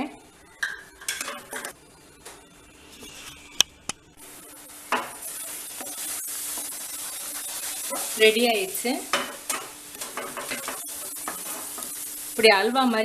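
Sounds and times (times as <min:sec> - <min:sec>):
fruit pulp sizzling in a pan: 0:04.2 - 0:13.0.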